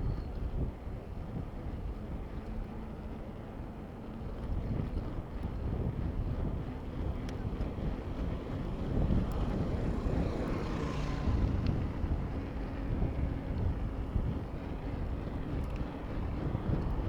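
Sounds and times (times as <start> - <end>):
wind buffeting microphone: 0.0 - 17.0
road and traffic rumble: 0.2 - 17.0.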